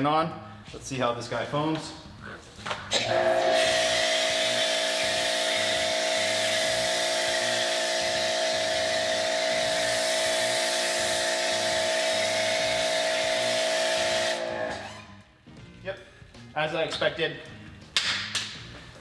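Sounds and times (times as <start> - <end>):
pressure washer motor whine: 2.9 - 14.9
water hissing through foam cannon: 3.2 - 14.7.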